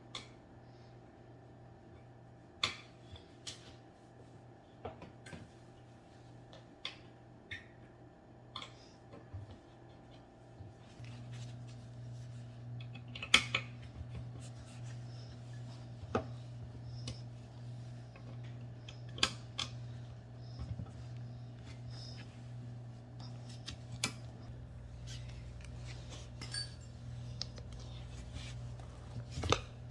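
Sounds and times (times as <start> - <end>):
steady low hum: 8.2 - 29.9.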